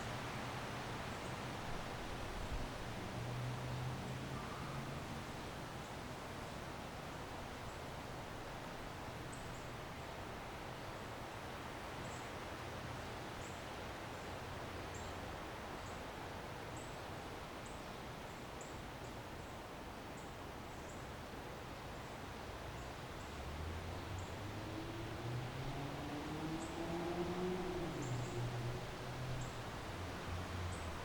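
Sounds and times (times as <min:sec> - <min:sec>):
distant city noise: 0:22.9 - 0:31.0.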